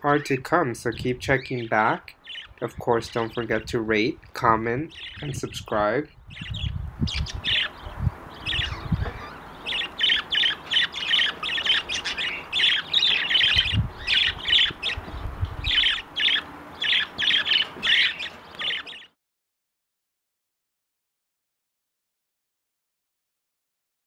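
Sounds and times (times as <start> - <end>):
budgerigars squawking: 1.4 - 3.7, 4.9 - 5.5, 6.2 - 19.1.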